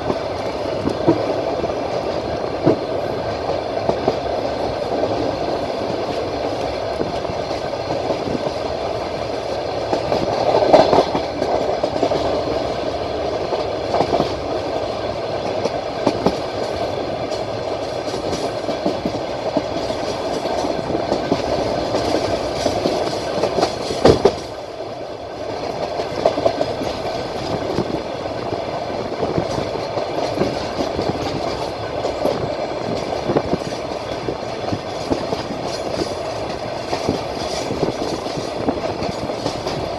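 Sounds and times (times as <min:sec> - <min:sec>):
train wheels clacking over rails: 0:00.0 - 0:39.9.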